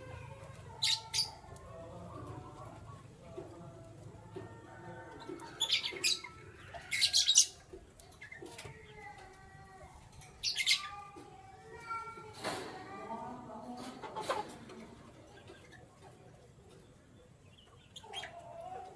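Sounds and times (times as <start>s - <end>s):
canaries chirping: 0.0s - 12.0s, 13.1s - 18.9s
soft bird calls: 0.7s - 3.2s, 4.3s - 11.5s, 14.2s - 18.9s.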